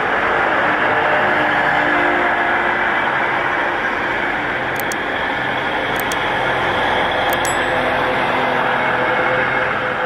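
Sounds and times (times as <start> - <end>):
quick double click: 4.8 - 5.1, 6.0 - 6.3, 7.3 - 8.0.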